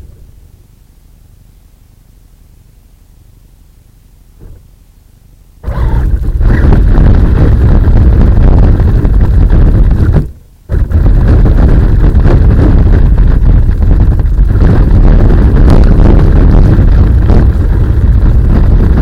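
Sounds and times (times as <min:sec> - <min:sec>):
rc truck drivetrain rumble: 0:05.6 - 0:19.0.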